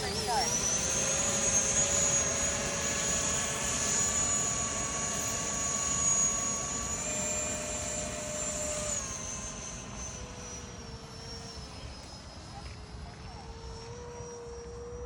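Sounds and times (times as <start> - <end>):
model jet fans whining: 0.0 - 15.0.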